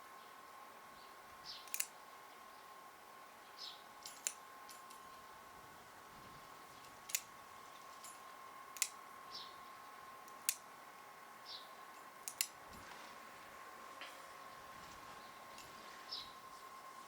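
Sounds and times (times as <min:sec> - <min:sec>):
nail clippers clicking: 0:01.7 - 0:02.0, 0:06.8 - 0:07.4, 0:08.7 - 0:09.0, 0:10.3 - 0:10.6, 0:12.2 - 0:12.6.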